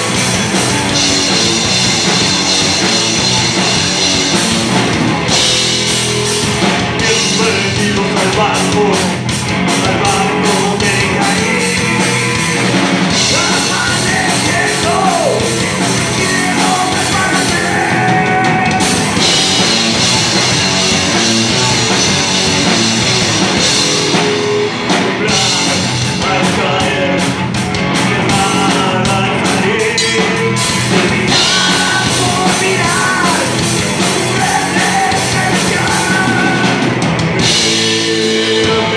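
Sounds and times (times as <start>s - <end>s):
drum kit: 0.0s - 38.9s
rock band playing: 0.0s - 38.9s
person singing: 7.0s - 19.4s, 23.8s - 38.9s.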